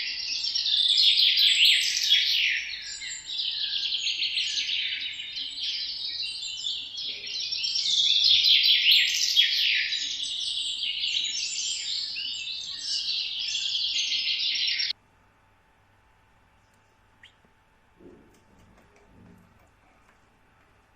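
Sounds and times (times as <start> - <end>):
parrot chirping and chattering: 16.7 - 17.5.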